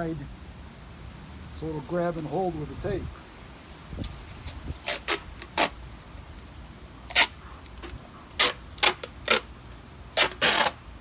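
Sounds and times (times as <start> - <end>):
duct tape ripping: 4.0 - 10.9.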